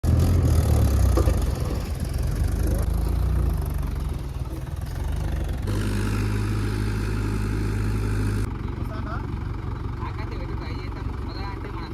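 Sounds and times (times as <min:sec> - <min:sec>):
tractor diesel engine running: 0:00.0 - 0:11.9.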